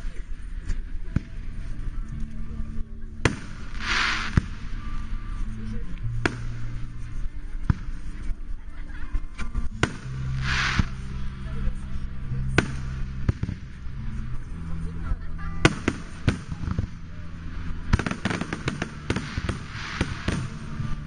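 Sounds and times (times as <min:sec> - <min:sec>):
fireworks bangs: 0:03.3 - 0:04.8, 0:09.8 - 0:11.1, 0:17.9 - 0:21.0
fireworks hiss: 0:03.3 - 0:04.8, 0:09.9 - 0:11.2, 0:18.0 - 0:21.0.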